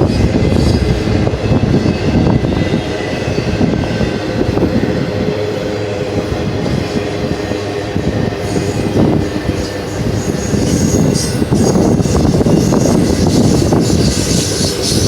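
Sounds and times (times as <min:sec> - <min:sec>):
freight train rumbling past: 0:00.0 - 0:15.0
high wheel squeal: 0:05.9 - 0:15.0.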